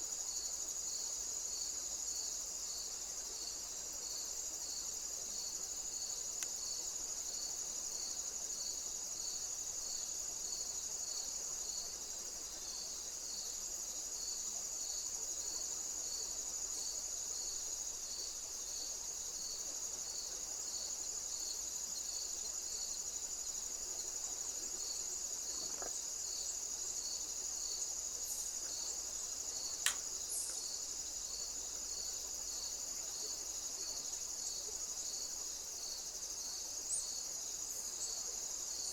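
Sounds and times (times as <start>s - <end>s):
insect chirping: 0.0s - 38.9s
insect high-pitched trill: 25.9s - 32.8s
sharp click: 29.8s - 30.6s.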